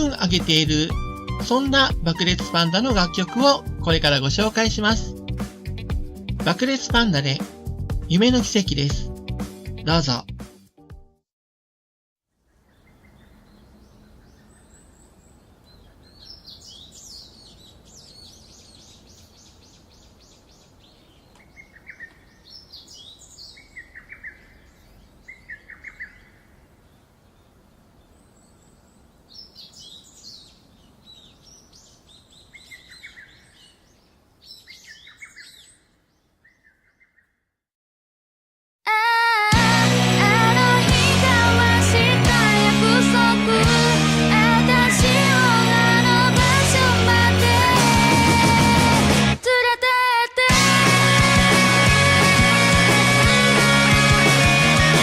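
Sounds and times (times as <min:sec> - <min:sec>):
faint outdoor hiss: 0:12.3 - 0:36.5
birds chirping and trilling: 0:12.4 - 0:37.6.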